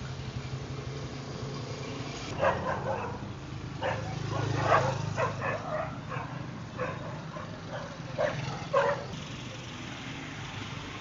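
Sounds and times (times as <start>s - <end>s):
dog barking: 2.4s - 9.1s.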